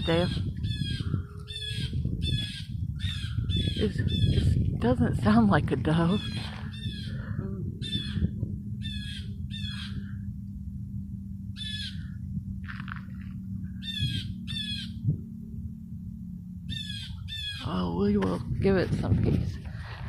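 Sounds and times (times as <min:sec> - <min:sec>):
bird squawking: 0:07.8 - 0:10.1, 0:11.6 - 0:12.1, 0:13.8 - 0:15.0, 0:16.7 - 0:17.8.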